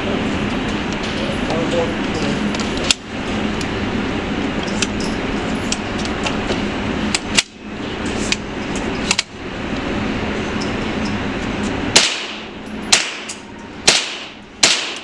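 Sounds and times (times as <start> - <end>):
steady background rush: 0.0 - 15.0
gunshots: 12.0 - 13.3, 13.9 - 15.0.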